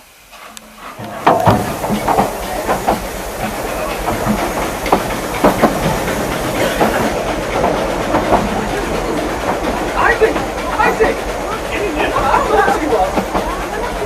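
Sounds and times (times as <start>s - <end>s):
train carriage rumbling: 0.0s - 14.0s
carriage clanks and rattles: 0.3s - 11.4s.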